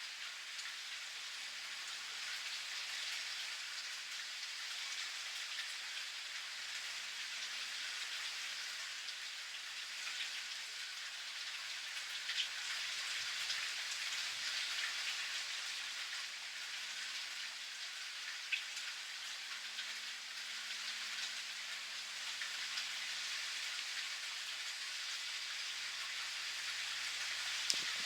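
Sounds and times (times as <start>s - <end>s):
steady rain: 0.0s - 28.0s
raindrops ticking sharply: 27.6s - 28.0s.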